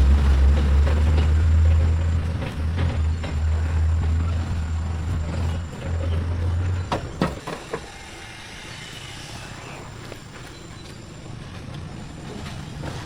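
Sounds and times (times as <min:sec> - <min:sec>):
engine humming: 0:00.0 - 0:07.4.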